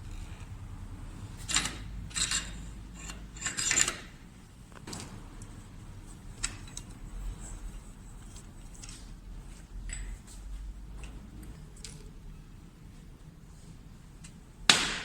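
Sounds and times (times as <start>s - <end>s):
metal scraping and clicking: 1.4s - 5.6s.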